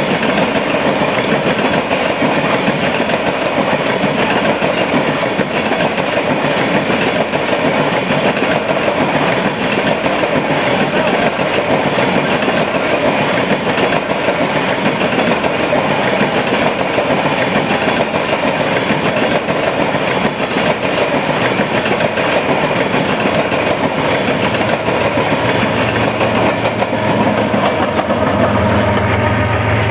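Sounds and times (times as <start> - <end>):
train wheels rumbling on rail: 0.0 - 29.9
low engine hum: 25.8 - 29.9.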